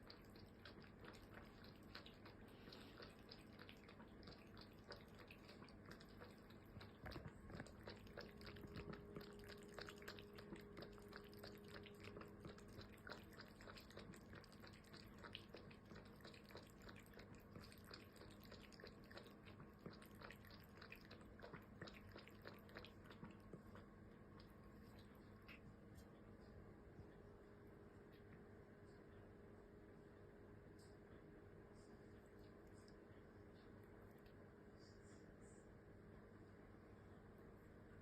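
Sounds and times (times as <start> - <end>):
cat chewing food: 0.0 - 26.5.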